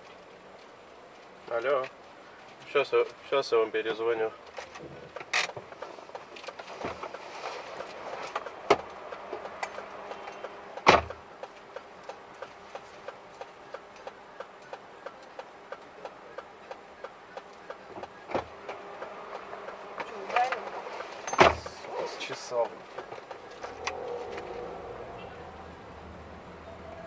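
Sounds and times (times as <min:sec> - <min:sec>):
car indicator ticking: 0:08.5 - 0:20.5.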